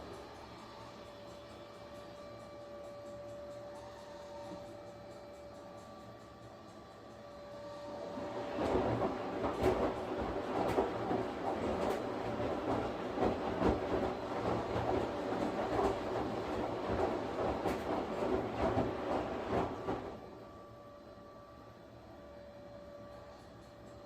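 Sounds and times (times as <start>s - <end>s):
washing machine hum and whine: 0.0s - 24.0s
washing machine drum churning: 8.0s - 20.2s.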